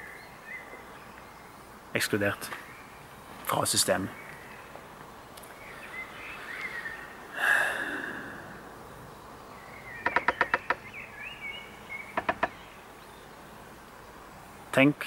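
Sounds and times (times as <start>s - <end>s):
birds chirping: 0.0s - 15.0s
bird rattling call: 10.0s - 11.0s.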